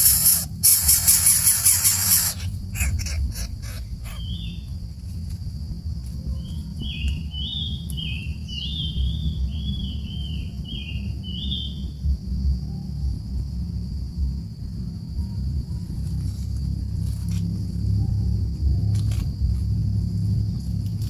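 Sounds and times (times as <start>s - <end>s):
small bird chirping: 0.0s - 4.8s, 6.3s - 12.1s
low rumble: 0.0s - 21.0s.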